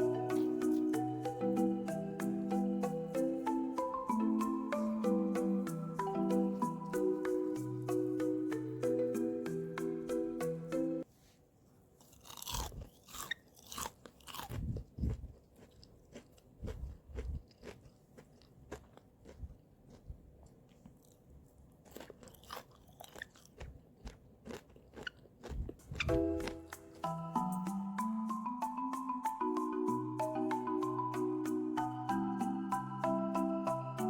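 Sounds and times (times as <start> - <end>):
marimba tune: 0.0 - 11.0, 26.1 - 34.0
crunchy food crunching: 12.0 - 26.8.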